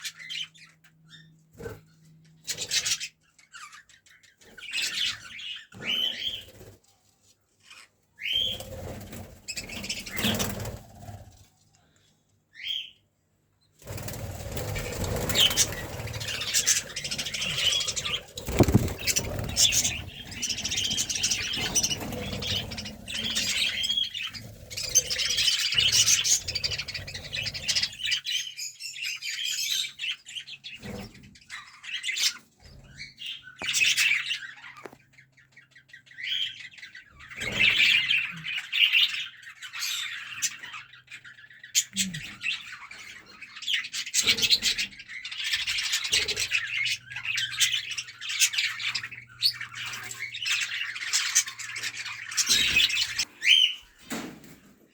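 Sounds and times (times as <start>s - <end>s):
small birds chirping: 0.0s - 54.9s
wings fluttering and flapping: 5.8s - 7.0s, 7.6s - 11.5s, 13.8s - 28.2s, 45.6s - 54.9s.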